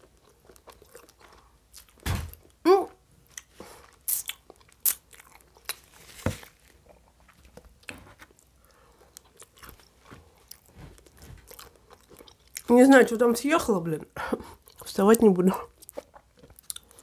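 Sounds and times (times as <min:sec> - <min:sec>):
wet chewing clicks: 0:14.6 - 0:17.0.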